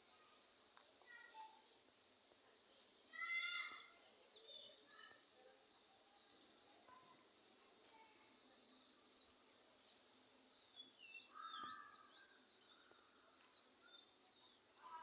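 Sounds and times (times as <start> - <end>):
high insect trill: 0.0 - 15.0
birds chirping and calling: 10.7 - 15.0.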